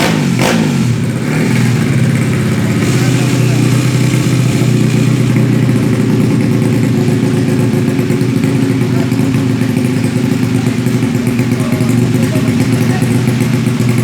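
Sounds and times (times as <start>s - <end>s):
scooter engine idling: 0.0s - 14.0s.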